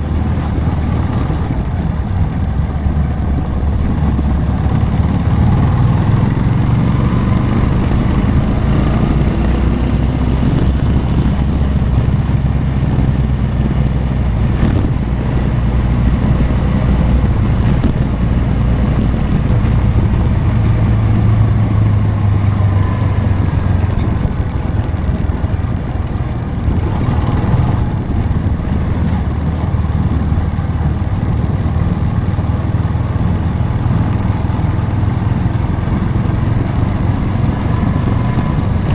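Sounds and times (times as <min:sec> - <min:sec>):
motorcycle engine droning: 0:00.0 - 0:38.9.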